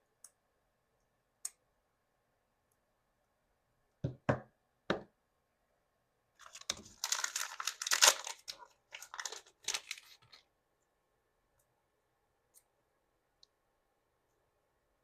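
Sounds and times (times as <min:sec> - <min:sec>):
plastic wrapper crinkling and tearing: 0:06.4 - 0:10.5.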